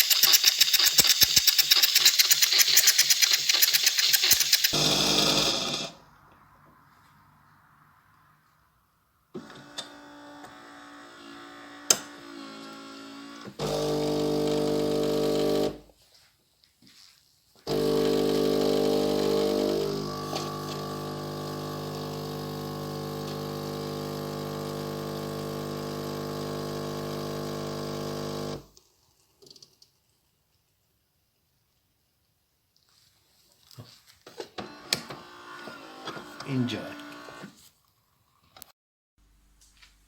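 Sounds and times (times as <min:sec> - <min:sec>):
machine clicks: 0:00.0 - 0:04.8
espresso machine motor hum: 0:00.0 - 0:06.0, 0:10.4 - 0:15.8, 0:17.7 - 0:28.7, 0:34.7 - 0:37.5
espresso machine pump buzz: 0:00.0 - 0:06.0, 0:09.8 - 0:15.8, 0:17.7 - 0:28.7, 0:34.7 - 0:37.5.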